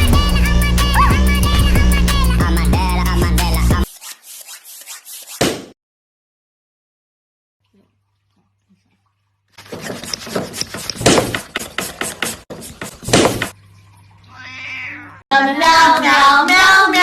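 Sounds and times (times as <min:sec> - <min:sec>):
thumps and knocks: 0:09.7 - 0:13.5.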